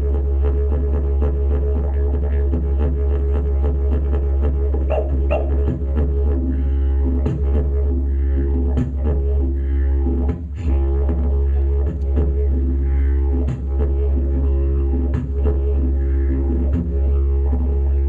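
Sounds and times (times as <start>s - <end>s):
didgeridoo drone: 0.0s - 18.0s.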